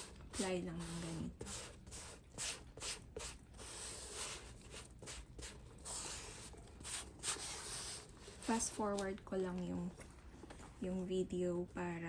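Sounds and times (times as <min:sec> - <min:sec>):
sponge swishing on leather: 0:00.0 - 0:09.0.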